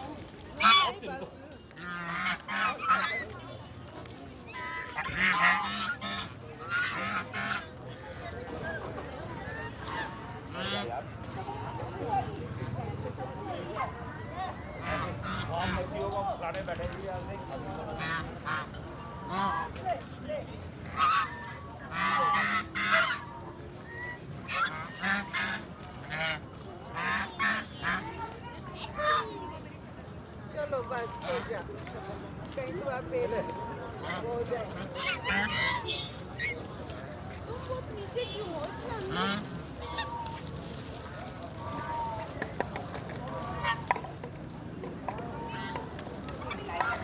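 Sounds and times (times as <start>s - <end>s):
waterfowl calling: 4.5s - 7.6s.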